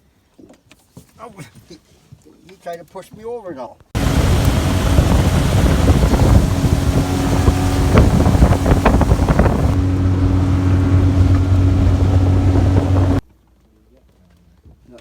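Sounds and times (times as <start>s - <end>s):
outboard motor running: 4.0s - 13.2s
wind buffeting microphone: 4.0s - 13.2s.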